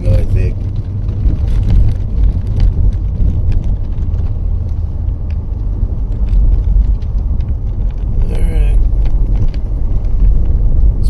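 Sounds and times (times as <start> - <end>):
car road rumble: 0.0 - 11.0.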